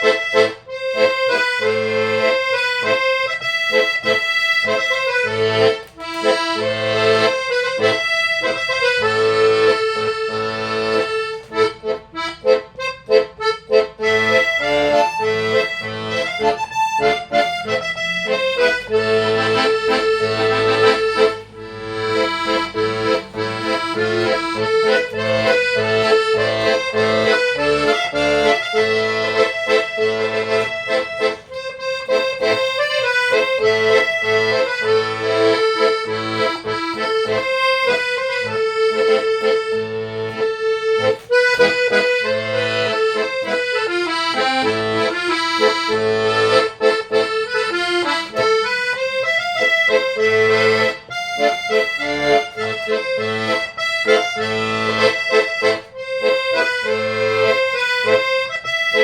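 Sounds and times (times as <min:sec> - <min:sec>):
accordion melody: 0:00.0 - 0:59.0.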